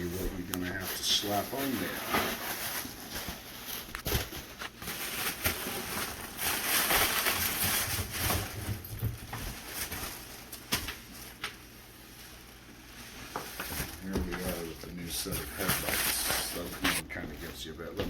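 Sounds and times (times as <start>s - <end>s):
packaging rustling: 0.0s - 17.1s.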